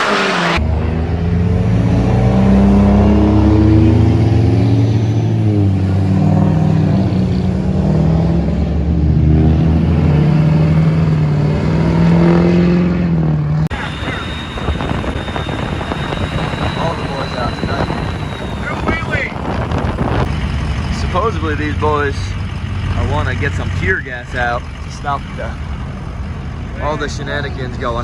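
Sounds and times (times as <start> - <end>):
diesel truck engine running: 3.8 - 8.9, 13.7 - 28.0.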